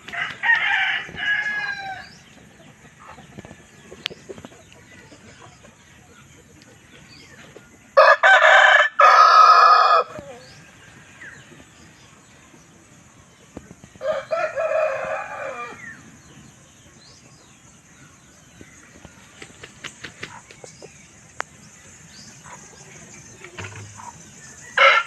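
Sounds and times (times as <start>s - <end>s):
roosters crowing: 0.0s - 2.3s, 7.9s - 11.4s, 14.0s - 16.0s, 23.6s - 25.0s.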